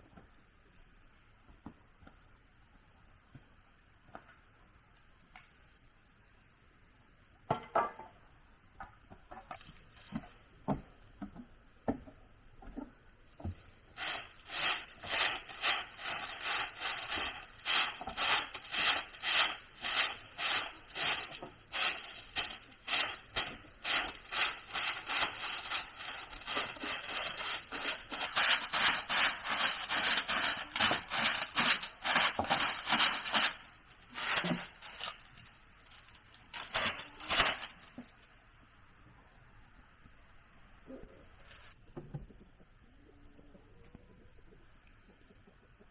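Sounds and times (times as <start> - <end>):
hand saw cutting wood: 14.0 - 33.5.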